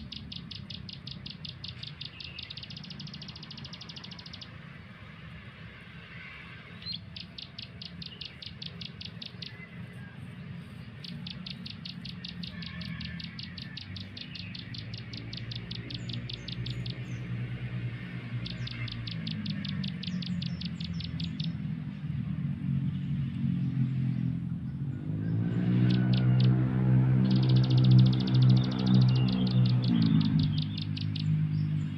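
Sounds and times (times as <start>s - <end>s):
bird call trilling: 0.0s - 4.6s, 6.7s - 21.7s, 25.8s - 31.9s.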